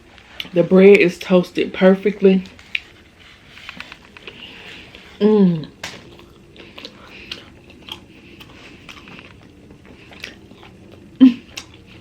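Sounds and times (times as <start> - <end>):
chewing and biting sandwich: 2.6 - 12.0
person humming mmm: 5.1 - 5.8.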